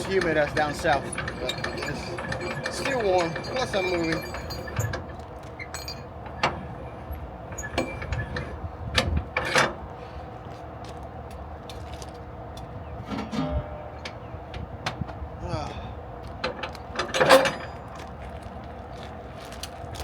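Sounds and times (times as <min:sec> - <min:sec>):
metallic clicks and clanks: 0:00.0 - 0:09.7, 0:16.4 - 0:18.2.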